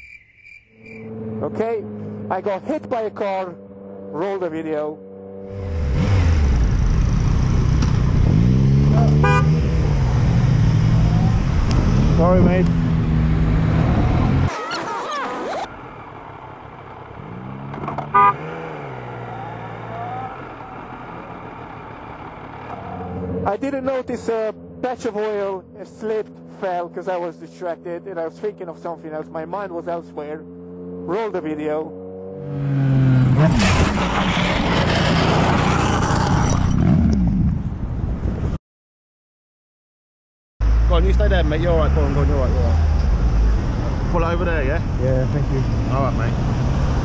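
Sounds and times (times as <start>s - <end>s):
wind and road noise: 0.0s - 27.3s, 27.9s - 38.6s, 40.6s - 47.0s
motorcycle engine: 1.0s - 37.8s
motorcycle engine running: 5.0s - 13.6s, 20.1s - 26.6s
short sharp horn toot: 9.0s - 9.7s, 18.2s - 18.5s.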